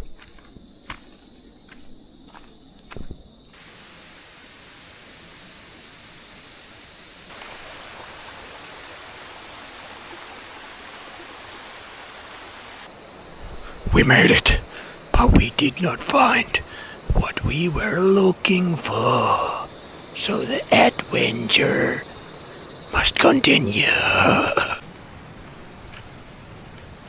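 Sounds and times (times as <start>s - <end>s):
footsteps on trail: 0.0s - 3.3s.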